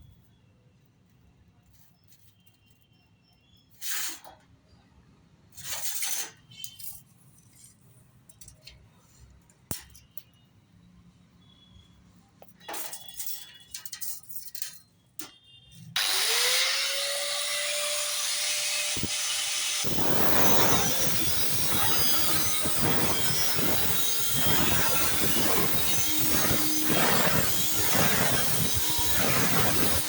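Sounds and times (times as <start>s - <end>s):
angle grinder whining: 16.0s - 30.0s
grinder cutting metal: 16.0s - 30.0s.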